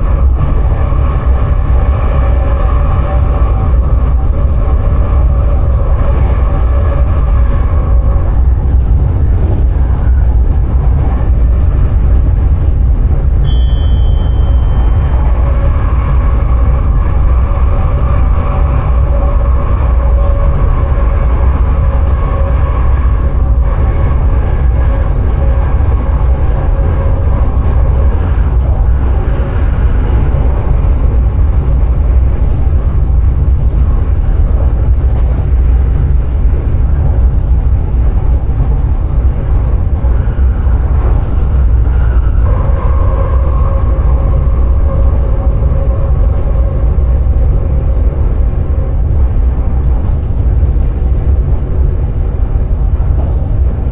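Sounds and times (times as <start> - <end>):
steady humming tones: 0.0 - 53.9
train low rumble: 0.0 - 53.9
short high tone: 13.4 - 15.0.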